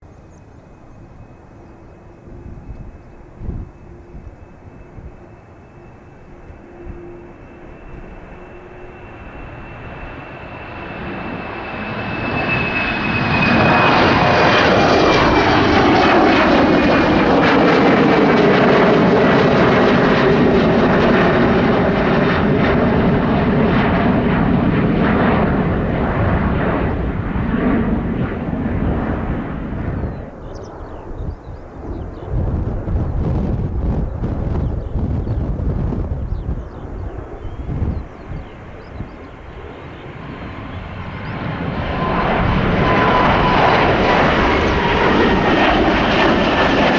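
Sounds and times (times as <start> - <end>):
high jet fan whine: 0.1 - 46.9
jet engines roaring past: 0.1 - 46.9.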